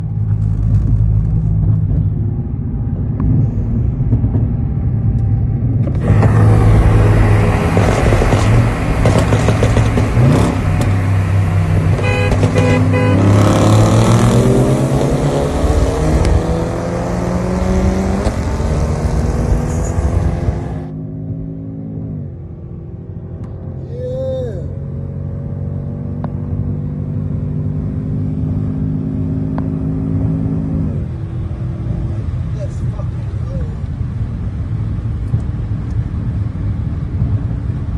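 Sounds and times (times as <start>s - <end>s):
car engine accelerating: 0.0s - 24.0s
road noise: 0.0s - 37.9s.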